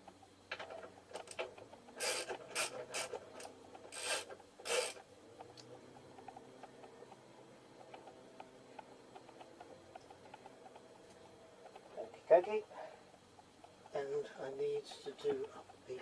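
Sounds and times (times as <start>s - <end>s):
socket ratchet clicking and rasping: 0.9s - 11.0s.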